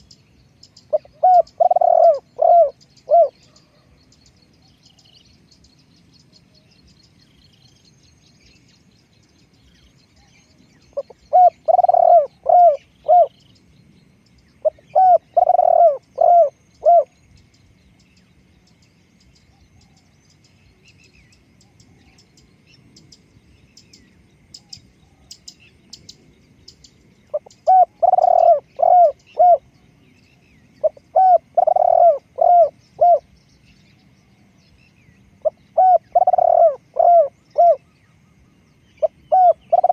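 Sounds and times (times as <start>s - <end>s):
small birds chirping: 0.0s - 39.9s
dove cooing: 0.9s - 4.0s, 10.9s - 13.4s, 14.6s - 17.2s, 27.3s - 29.7s, 30.8s - 33.3s, 35.4s - 37.9s, 39.0s - 39.9s.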